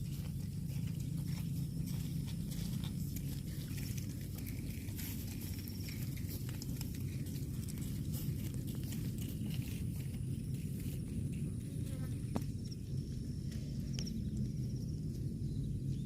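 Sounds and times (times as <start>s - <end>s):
cow chewing grass: 0.0s - 16.0s
steady low hum: 0.0s - 16.0s.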